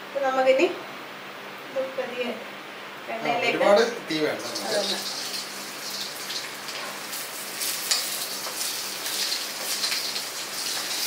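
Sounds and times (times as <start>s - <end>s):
lentils sizzling in hot oil: 4.4s - 11.0s.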